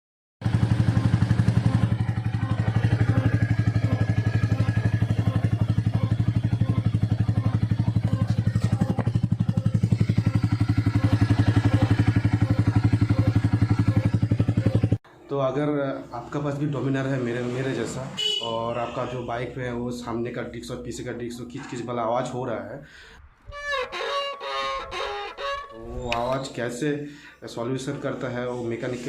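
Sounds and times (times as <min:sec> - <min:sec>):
motorcycle engine idling: 0:00.4 - 0:15.0.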